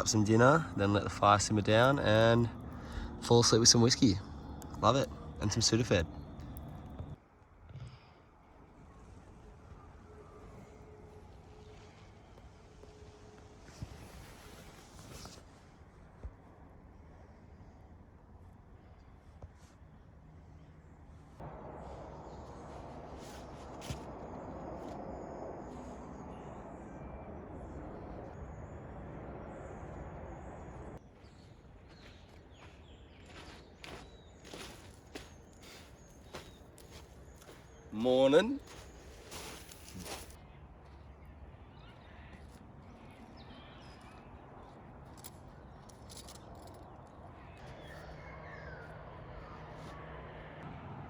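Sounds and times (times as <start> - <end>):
birds chirping: 0.0 - 7.2, 19.9 - 50.5
low steady hum: 0.0 - 7.2
birds calling falling whistles: 23.2 - 40.3.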